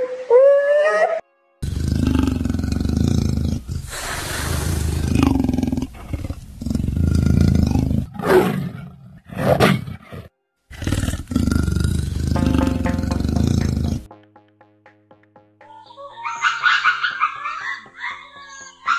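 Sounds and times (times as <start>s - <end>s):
lion roaring and growling: 1.6s - 14.1s.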